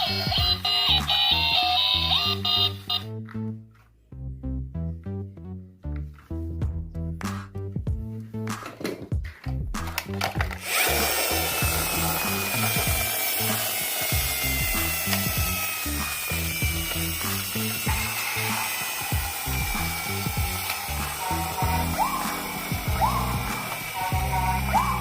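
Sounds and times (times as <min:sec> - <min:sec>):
toy motor whirring: 0:00.0 - 0:03.0, 0:10.2 - 0:25.0
background music with beat: 0:04.4 - 0:25.0.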